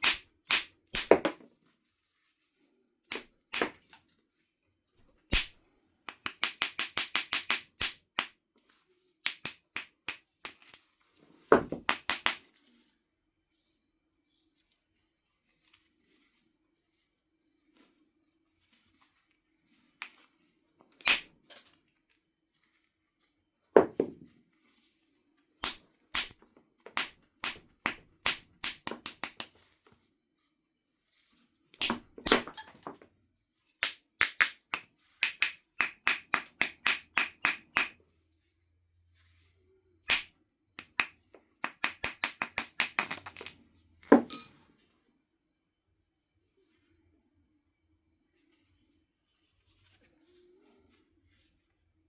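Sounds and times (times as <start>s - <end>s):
billet clicking on stone: 0.0s - 1.2s, 5.3s - 8.4s, 9.2s - 10.8s, 33.8s - 38.0s, 40.0s - 43.6s.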